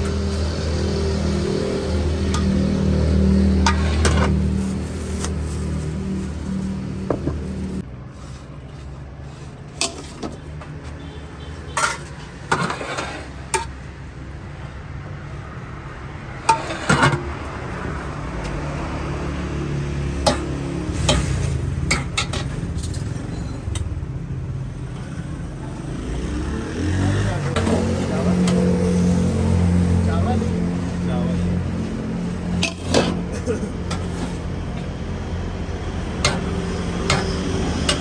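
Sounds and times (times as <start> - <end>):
low hum of road traffic: 0.0 - 38.0
metal utensils and dishes clinking: 2.2 - 7.8, 9.7 - 10.5, 11.7 - 13.8, 20.2 - 24.0, 32.4 - 34.5, 36.2 - 38.0.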